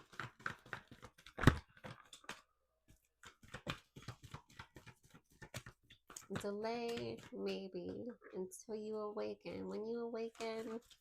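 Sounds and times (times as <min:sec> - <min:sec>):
cards clicking and rustling: 0:00.0 - 0:07.3.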